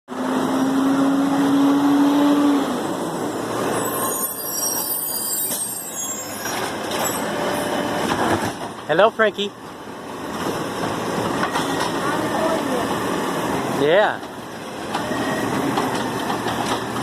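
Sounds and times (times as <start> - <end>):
high-pitched squealing: 3.7 - 7.6.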